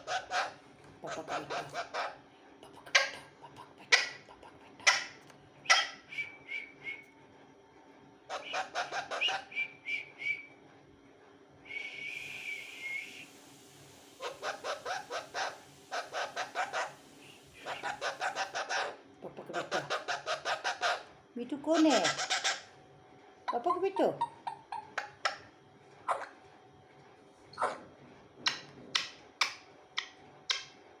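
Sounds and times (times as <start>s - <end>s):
parrot calling: 0.0s - 2.2s, 3.8s - 6.1s, 8.3s - 9.6s, 12.1s - 21.1s, 21.7s - 22.7s, 23.5s - 25.5s, 26.1s - 26.4s
parrot whistling: 5.7s - 7.0s, 8.3s - 10.5s, 11.7s - 13.4s, 14.0s - 18.9s.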